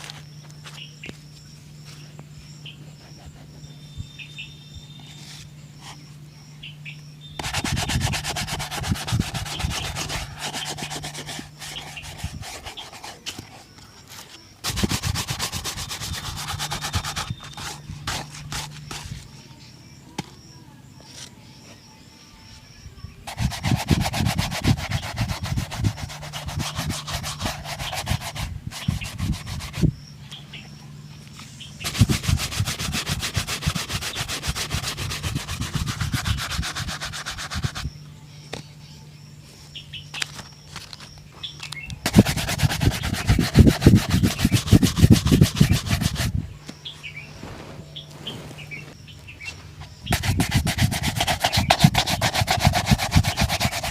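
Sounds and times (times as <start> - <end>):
shoe being buffed: 7.4 - 19.3, 23.3 - 29.9, 31.8 - 37.9, 42.1 - 46.4, 50.1 - 53.9.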